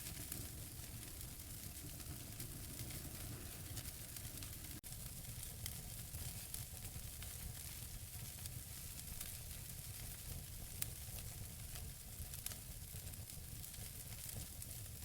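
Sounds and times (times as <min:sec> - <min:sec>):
fireplace fire hissing: 0:00.0 - 0:05.6
fire crackling and popping: 0:00.0 - 0:15.0.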